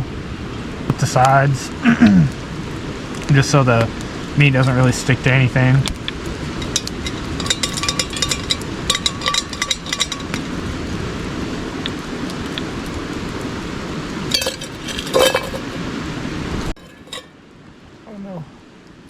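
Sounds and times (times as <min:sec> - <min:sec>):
metal utensil clinking against pot: 0:05.8 - 0:11.2, 0:11.8 - 0:13.3, 0:14.3 - 0:15.8, 0:16.8 - 0:17.3.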